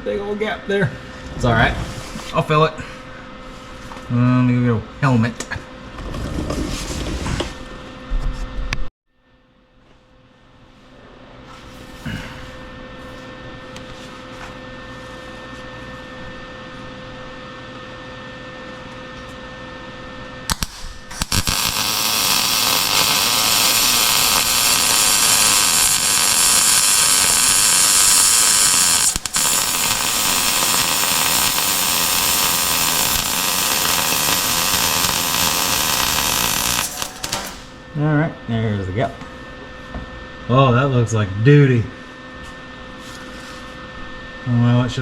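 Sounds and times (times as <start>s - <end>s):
arc welding crackling sizzle: 20.5s - 37.9s.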